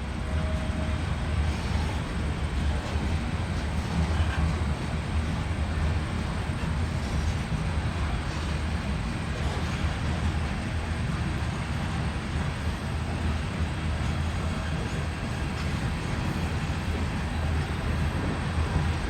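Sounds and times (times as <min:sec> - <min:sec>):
freight train rumbling on rails: 0:00.0 - 0:19.0.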